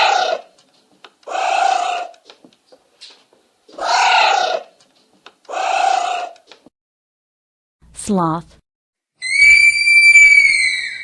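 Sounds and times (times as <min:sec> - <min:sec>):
anteater harsh calls: 0:09.2 - 0:11.0.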